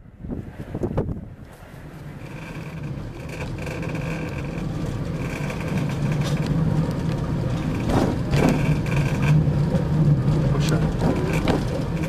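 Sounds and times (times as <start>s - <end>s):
rack train running on track: 0.6s - 12.0s
sharp knocks: 7.6s - 9.3s.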